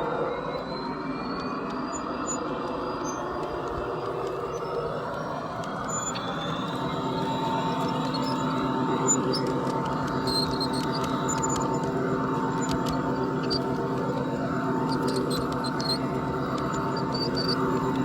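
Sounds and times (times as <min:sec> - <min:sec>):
held whine: 0:00.0 - 0:18.0.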